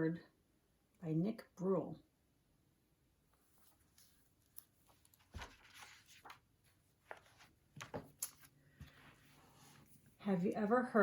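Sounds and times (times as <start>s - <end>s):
paper rustling: 3.4s - 10.1s
picture book pages turning: 3.4s - 10.1s.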